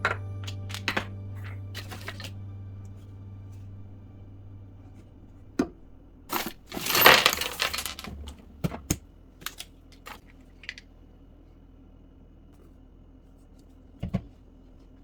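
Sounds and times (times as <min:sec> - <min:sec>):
household items clicking and knocking: 0:06.3 - 0:08.9.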